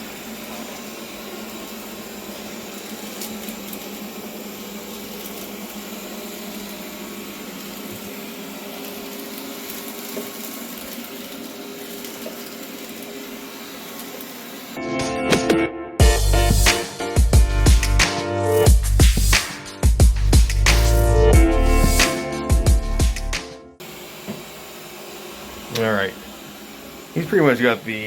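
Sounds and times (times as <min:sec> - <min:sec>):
robot vacuum whirring: 0:00.0 - 0:14.8, 0:21.6 - 0:28.0.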